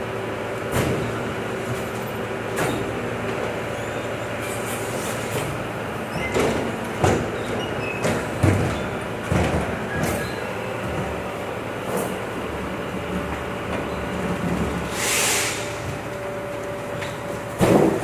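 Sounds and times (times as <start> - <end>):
truck diesel engine running: 0.0 - 18.0
sharp clunks and rattles: 5.3 - 11.2.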